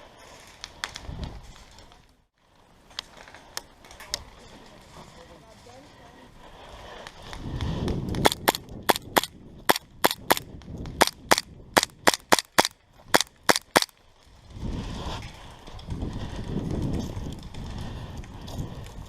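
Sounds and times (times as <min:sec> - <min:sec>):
rustling of movement: 0:00.0 - 0:09.2
airsoft gun shots: 0:11.0 - 0:13.9.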